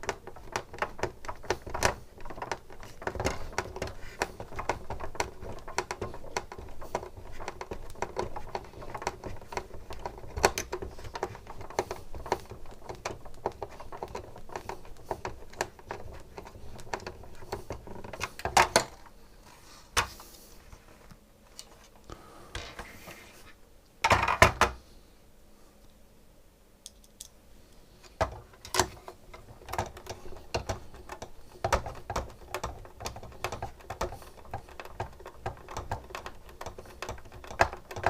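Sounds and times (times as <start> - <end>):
plastic parts clicking and rattling: 0.0 - 19.2, 28.0 - 38.0.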